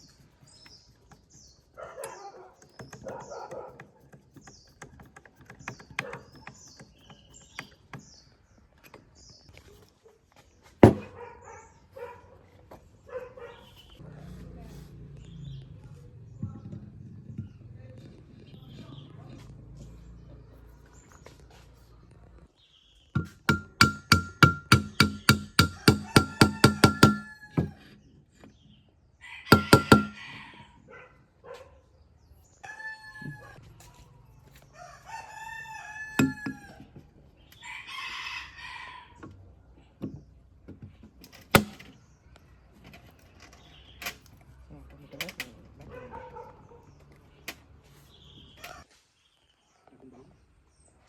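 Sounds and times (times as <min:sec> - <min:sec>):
rooster crowing: 0:25.8 - 0:27.8, 0:29.2 - 0:30.8, 0:34.7 - 0:36.8.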